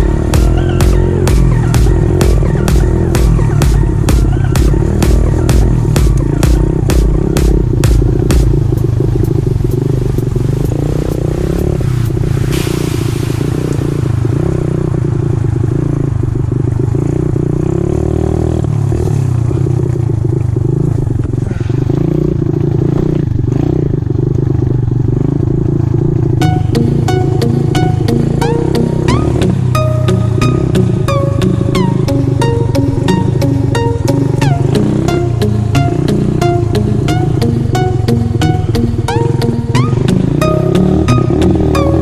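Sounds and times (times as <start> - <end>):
music beat: 0.0 - 12.8, 26.4 - 42.0
motorcycle engine running: 0.0 - 42.0.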